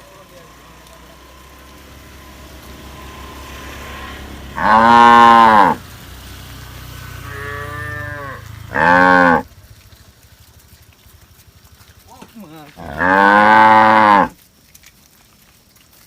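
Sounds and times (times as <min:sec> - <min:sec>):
cattle mooing: 0:03.4 - 0:05.8, 0:07.2 - 0:09.5, 0:12.7 - 0:14.4.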